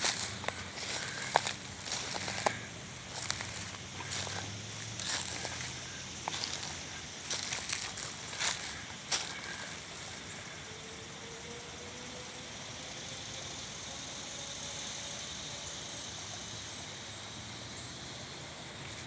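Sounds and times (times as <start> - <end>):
faint engine hum: 0.0 - 19.0.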